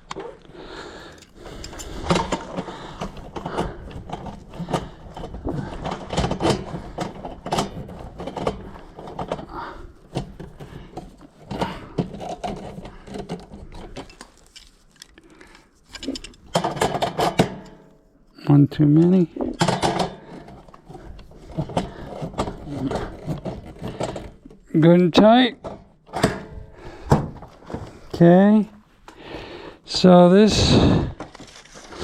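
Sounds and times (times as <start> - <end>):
metal clicks knocks and scrapes: 1.1 - 18.0, 18.8 - 25.0.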